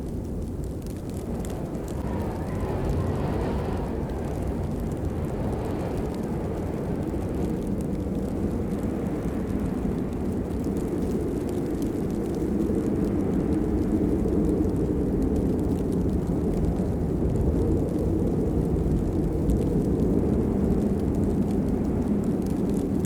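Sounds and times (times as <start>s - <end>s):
heavy rain: 0.0s - 23.0s.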